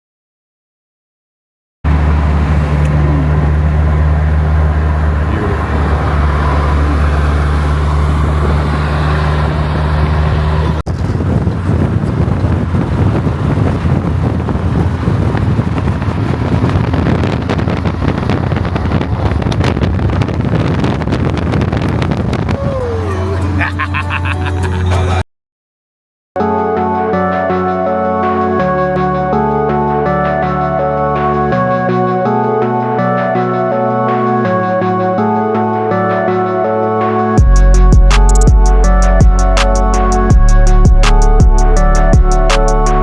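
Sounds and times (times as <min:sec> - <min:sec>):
car engine idling: 0:01.9 - 0:10.8
rough engine rumble with crackling: 0:01.9 - 0:23.6, 0:37.4 - 0:43.0.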